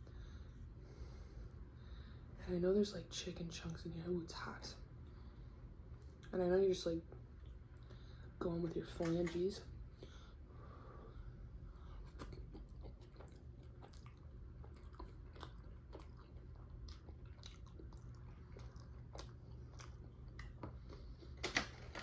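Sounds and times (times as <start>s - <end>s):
chewing: 11.9s - 21.4s.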